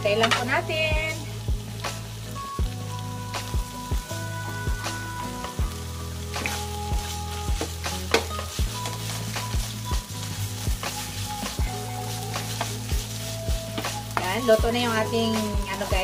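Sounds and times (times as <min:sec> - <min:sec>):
food sizzling in a frying pan: 0:00.0 - 0:16.0
utensil knocking and scraping pan: 0:07.5 - 0:10.0.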